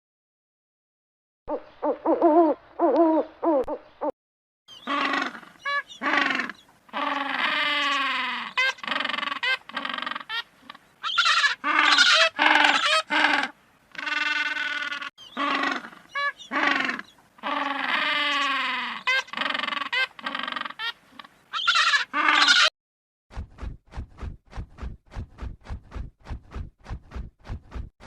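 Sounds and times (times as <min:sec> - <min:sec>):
wavering trilling animal calls: 0:04.7 - 0:22.7.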